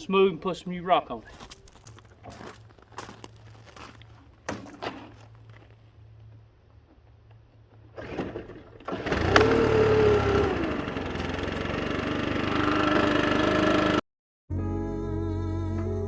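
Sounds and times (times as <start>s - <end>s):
leaf blower engine running: 8.0s - 14.0s.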